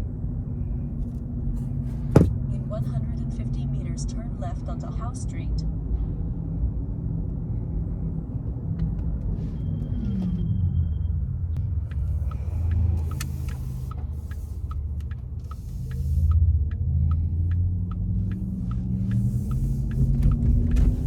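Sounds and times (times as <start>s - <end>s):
road and tyre rumble: 0.0s - 21.0s
turn indicator ticking: 11.9s - 20.8s.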